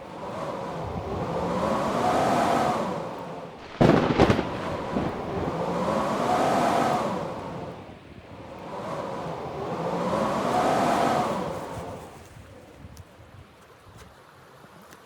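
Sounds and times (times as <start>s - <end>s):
blizzard wind howling: 0.0s - 12.4s
loud double thump: 3.6s - 5.6s.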